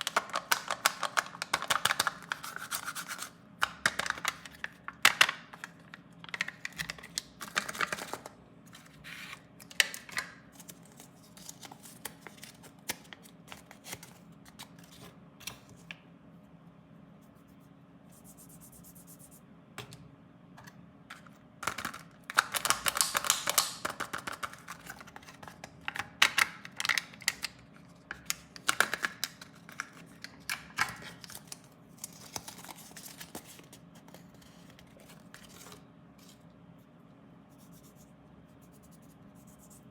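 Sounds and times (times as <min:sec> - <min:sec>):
plastic packaging clicks and taps: 0:00.0 - 0:02.2, 0:21.6 - 0:31.0
packaging crinkling and tearing: 0:00.0 - 0:15.0, 0:21.6 - 0:35.8.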